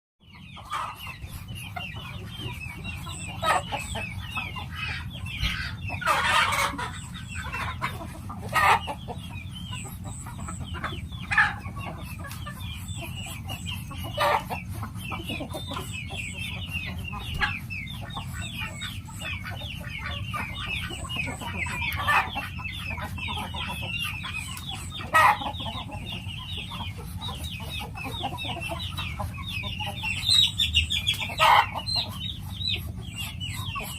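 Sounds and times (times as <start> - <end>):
chickens clucking: 0.2 - 33.9
high chirping: 8.6 - 33.9.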